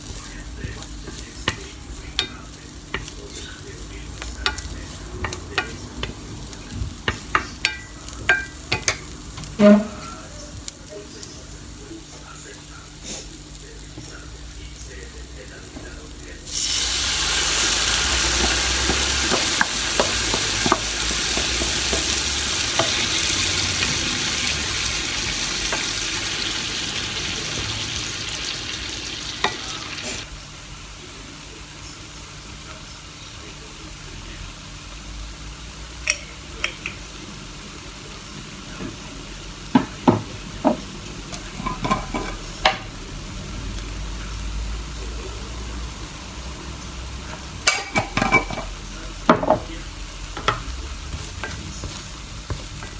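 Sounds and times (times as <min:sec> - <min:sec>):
stirring clinks and taps: 0:00.0 - 0:10.0, 0:16.6 - 0:26.6, 0:28.8 - 0:30.2, 0:36.0 - 0:37.0, 0:39.7 - 0:42.8, 0:47.3 - 0:48.7
food sizzling in a pan: 0:00.0 - 0:52.9.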